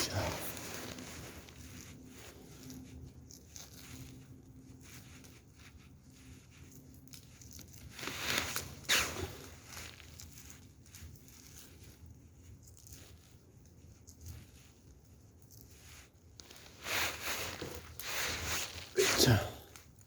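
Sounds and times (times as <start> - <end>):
wood fire crackling: 0.0 - 20.0
fire snapping sharply: 8.8 - 9.5.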